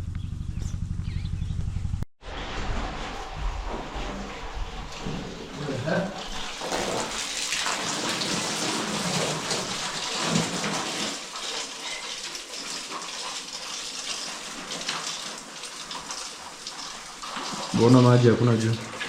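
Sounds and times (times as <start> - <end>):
low rumble: 0.0 - 6.4
water gushing from pipe: 2.3 - 19.0.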